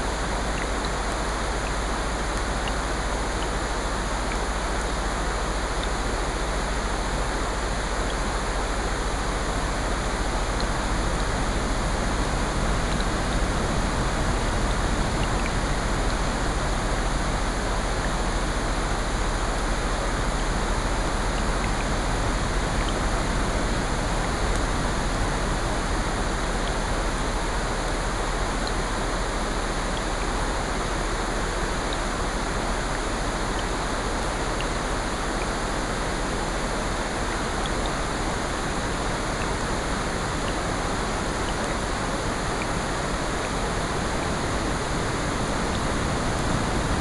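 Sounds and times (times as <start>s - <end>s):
rain: 0.0s - 47.0s
ocean surf: 36.4s - 47.0s.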